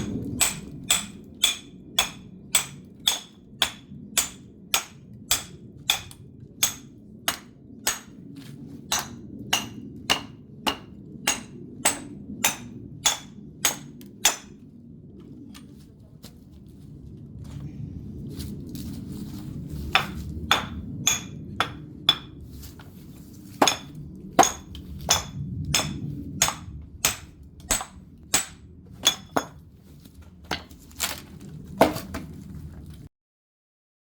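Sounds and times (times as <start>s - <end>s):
firewood being split: 0.0s - 14.6s, 18.4s - 33.0s.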